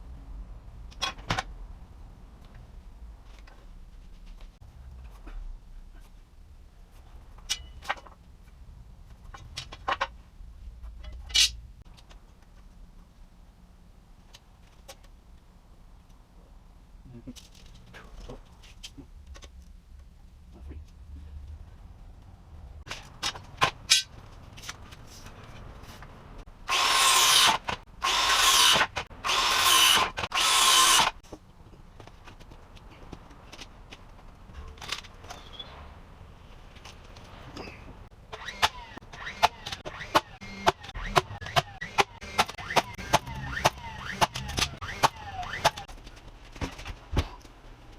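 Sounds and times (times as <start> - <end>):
power drill running: 26.7 - 31.2.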